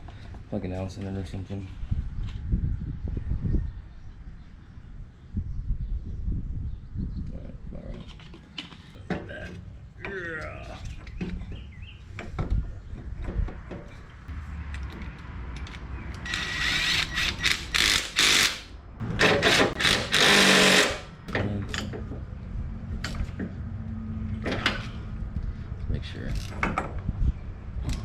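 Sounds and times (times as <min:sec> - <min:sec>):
cordless drill running: 0:16.2 - 0:18.7, 0:19.4 - 0:21.1.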